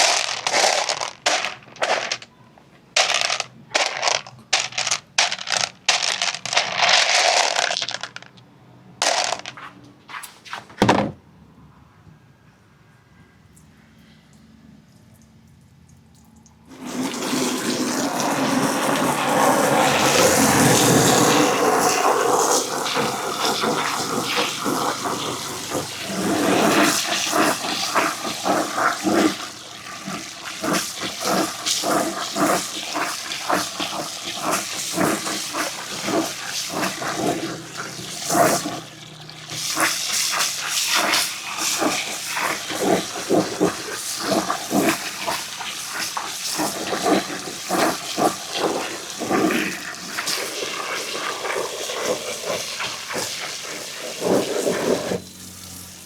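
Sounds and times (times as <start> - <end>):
marbles clicking on wooden track: 0.0 - 2.3, 2.9 - 9.8
marbles rumbling down ramps: 0.0 - 2.3, 2.9 - 9.7, 16.7 - 54.9.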